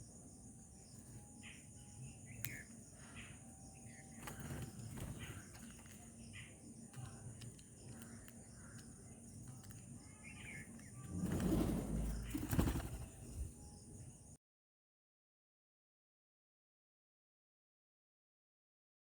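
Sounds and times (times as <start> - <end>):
faint bird chirps: 0.0 - 14.4
wings fluttering: 3.8 - 14.2.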